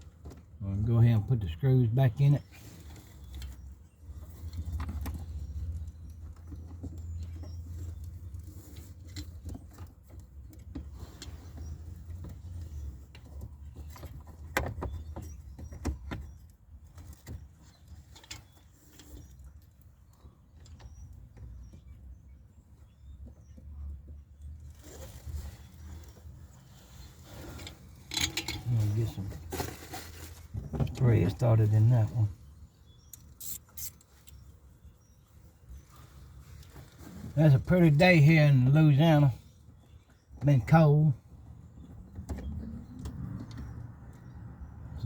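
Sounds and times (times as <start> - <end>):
screws and hand tool clicking: 33.2 - 34.1.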